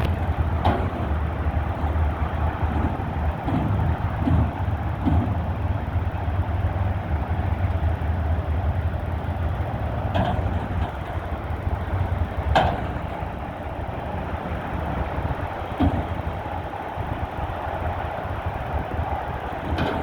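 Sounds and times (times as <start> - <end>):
short knocks: 0.0 - 5.7, 15.6 - 16.6
garbage truck diesel rumble: 0.0 - 20.0.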